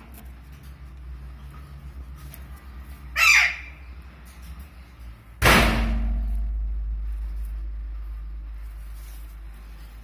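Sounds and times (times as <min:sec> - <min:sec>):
faint low hum: 0:00.0 - 0:10.0
parakeet squawk: 0:03.1 - 0:03.9.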